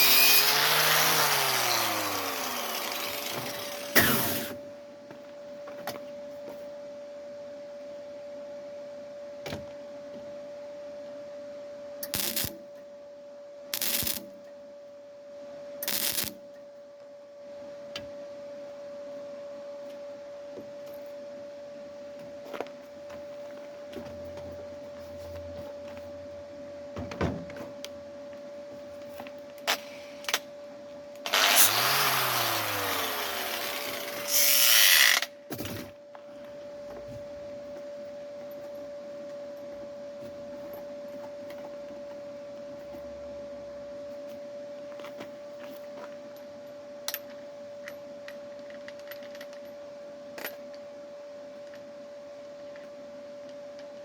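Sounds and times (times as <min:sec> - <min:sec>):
loud power tool: 0:00.0 - 0:04.6, 0:31.3 - 0:35.3
welding crackle: 0:12.0 - 0:12.6, 0:13.8 - 0:14.2, 0:15.8 - 0:16.4.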